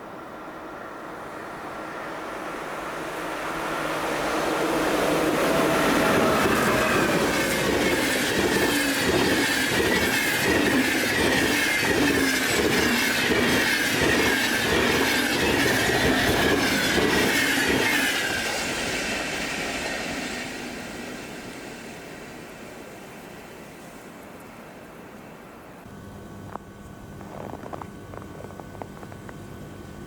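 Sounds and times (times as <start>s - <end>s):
train wheels clattering on rails: 3.4s - 22.0s.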